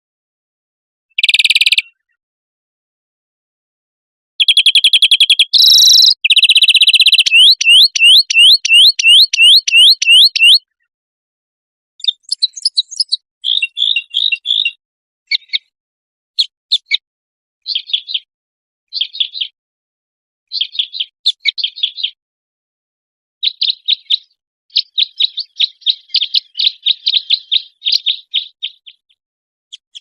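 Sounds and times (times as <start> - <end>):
songbird trilling and whistling: 1.2 - 2.1, 4.4 - 10.7, 12.0 - 15.7, 16.4 - 17.0, 17.7 - 18.3, 18.9 - 19.6, 20.5 - 22.2, 23.4 - 30.0
bird chirps and buzzy notes: 4.4 - 10.6, 12.0 - 14.8.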